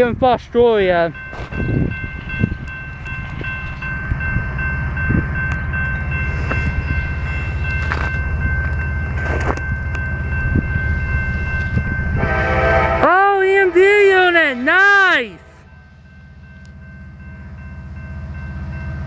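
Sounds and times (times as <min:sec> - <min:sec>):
diesel locomotive rumbling: 0:00.0 - 0:19.0
high-pitched ringing tones: 0:01.0 - 0:12.5.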